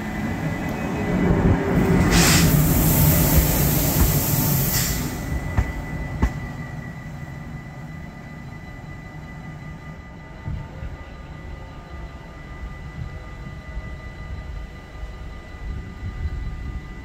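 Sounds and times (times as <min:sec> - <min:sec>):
train rumbling along track: 0:00.0 - 0:17.0
short hiss: 0:02.0 - 0:05.3.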